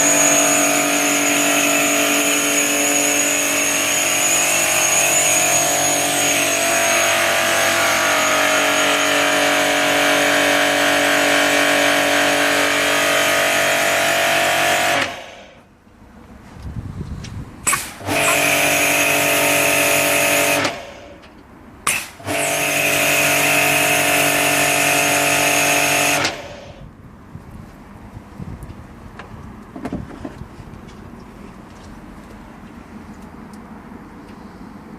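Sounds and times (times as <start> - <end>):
pressure washer running: 0.0 - 15.7, 17.6 - 26.9.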